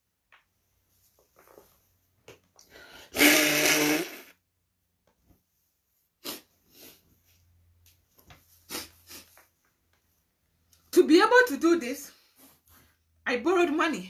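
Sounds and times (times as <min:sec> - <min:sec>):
short quiet sniffs: 0:06.2 - 0:07.1, 0:08.6 - 0:09.4.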